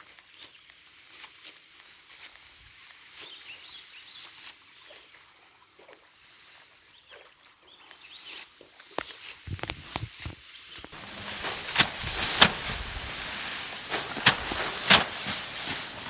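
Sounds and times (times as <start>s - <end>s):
short rustling clicks: 9.0s - 16.0s
steady high hiss: 9.1s - 16.0s.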